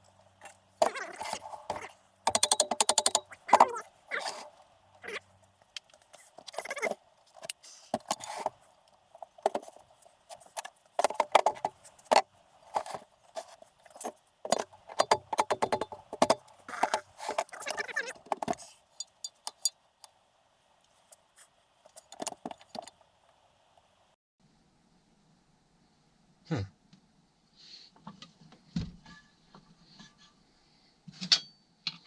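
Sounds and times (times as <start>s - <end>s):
metal tools clinking and knocking: 0.4s - 4.6s, 5.4s - 19.8s, 21.0s - 23.0s.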